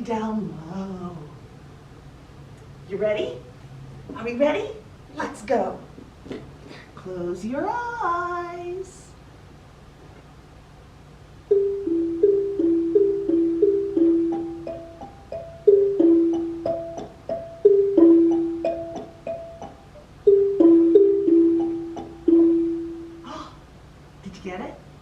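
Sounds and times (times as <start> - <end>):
xylophone two-note falling calls: 11.5 - 23.3.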